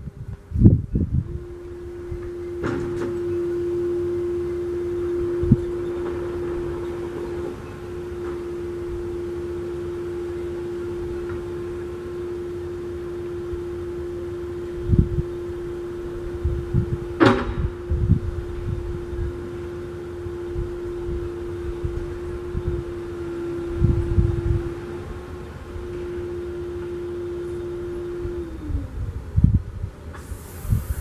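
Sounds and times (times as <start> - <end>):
steady mechanical hum: 0.0 - 31.0
low rumbling and knocks: 16.1 - 19.1.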